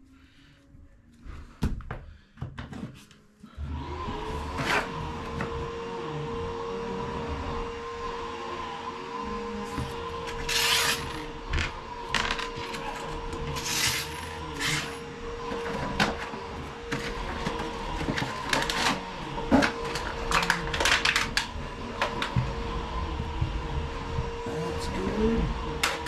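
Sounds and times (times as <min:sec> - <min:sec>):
steady hum: 0:09.2 - 0:26.0.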